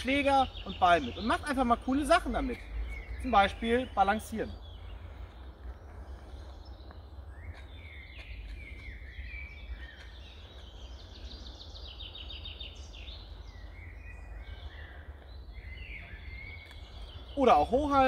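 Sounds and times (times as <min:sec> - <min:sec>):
low background rumble: 0:00.0 - 0:17.4
bird trill: 0:00.0 - 0:18.0
birds chirping and whistling: 0:00.0 - 0:18.0.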